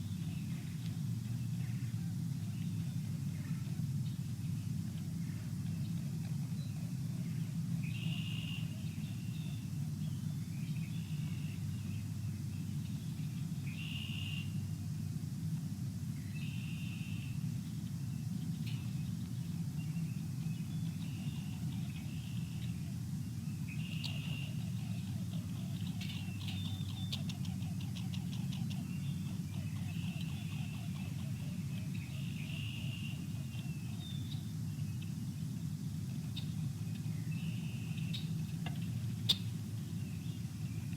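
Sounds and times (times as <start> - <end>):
steady low rumble: 0.0 - 40.9
small birds chirping: 16.2 - 40.9.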